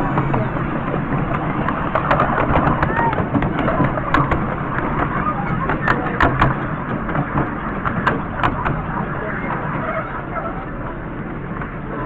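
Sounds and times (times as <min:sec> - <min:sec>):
sharp clicks and knocks: 0:00.0 - 0:09.0
miniature train rumbling: 0:00.0 - 0:12.0.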